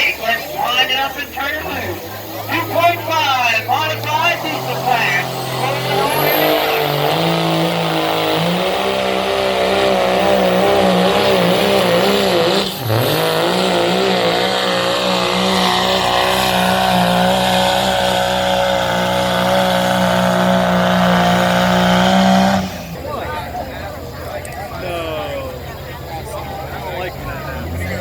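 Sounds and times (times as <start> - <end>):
diesel truck engine revving: 0.0 - 28.0.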